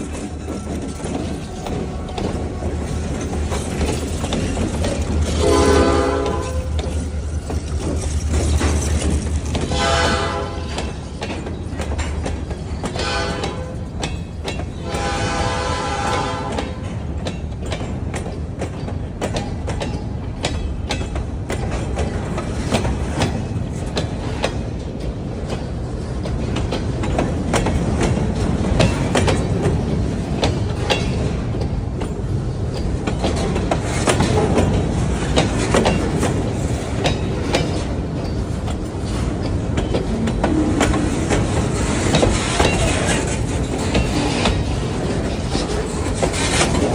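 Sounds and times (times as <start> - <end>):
locomotive rumbling: 0.0 - 46.9
wheels clicking over rail joints: 0.0 - 46.9
train horn: 5.3 - 6.7, 9.6 - 10.8, 12.9 - 13.8, 14.8 - 16.9.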